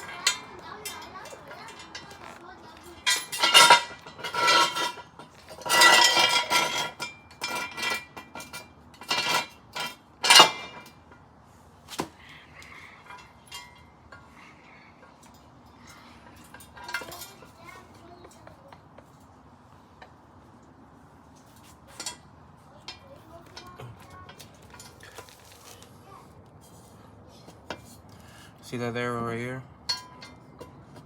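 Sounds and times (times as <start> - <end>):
metal jack stands clanking: 0.0 - 11.1, 15.1 - 17.6, 29.9 - 30.8.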